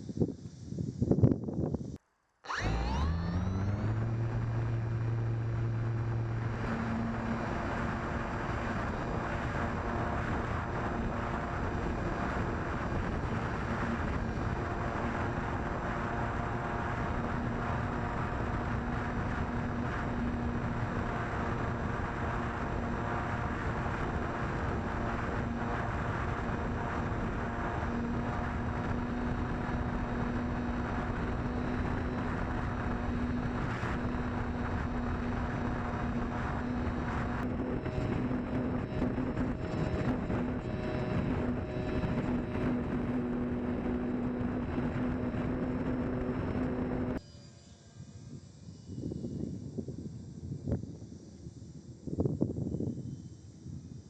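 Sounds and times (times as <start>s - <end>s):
wind noise on microphone: 0.0s - 2.0s, 2.6s - 47.3s, 47.9s - 54.0s
electric motor and propeller humming: 0.0s - 54.0s.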